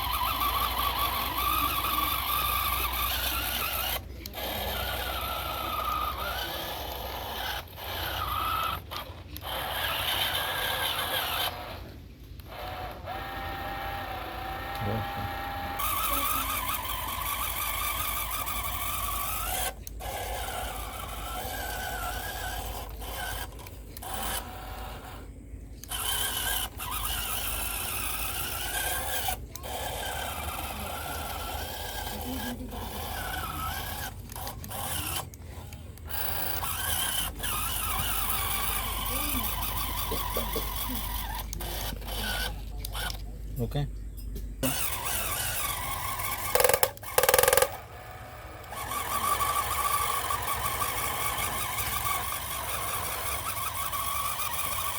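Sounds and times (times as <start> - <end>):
small motor and gears whining: 0.0 - 54.9
blade scraping: 44.6 - 47.8.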